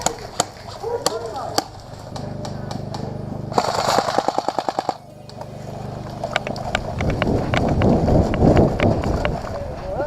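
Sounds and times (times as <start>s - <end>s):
airsoft gun firing: 0.0s - 5.0s.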